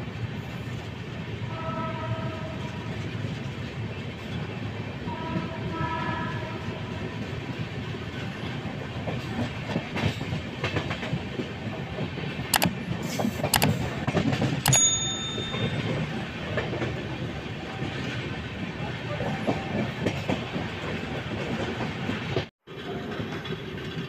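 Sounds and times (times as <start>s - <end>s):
train wheels rumbling on track: 0.0s - 24.0s
train horn chord: 1.5s - 2.7s, 5.1s - 6.8s
wheels clickety-clack: 7.5s - 24.0s.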